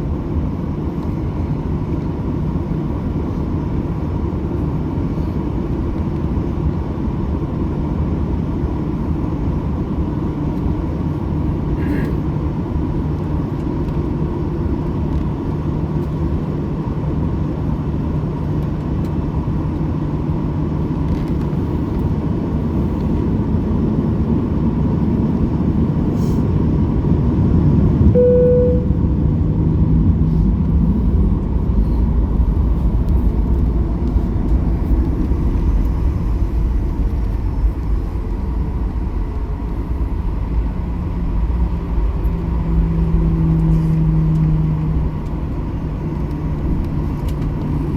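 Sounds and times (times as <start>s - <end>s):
low rumble of moving vehicle: 0.0s - 47.9s
short tone: 28.1s - 29.1s
faint steady whine: 28.1s - 29.4s.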